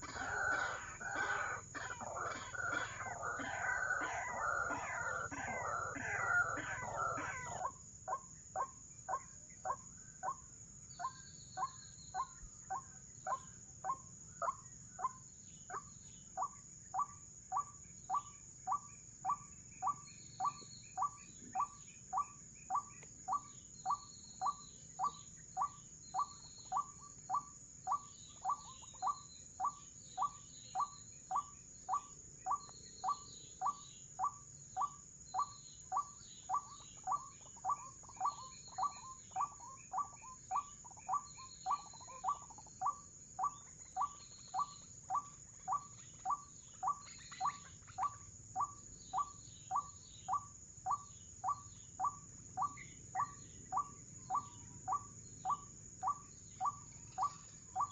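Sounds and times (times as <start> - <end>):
waterhen calling: 0.0 - 7.6
small birds chirping: 0.0 - 57.9.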